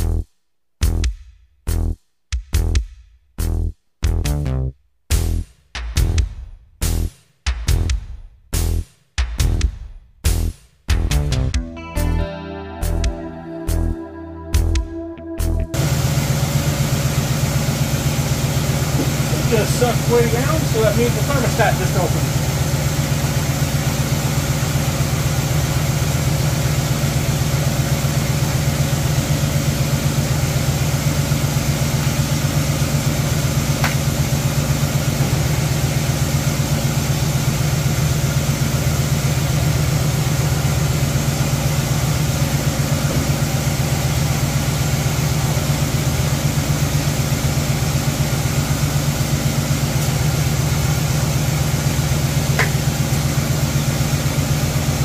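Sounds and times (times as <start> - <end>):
car engine idling: 15.4 - 55.0.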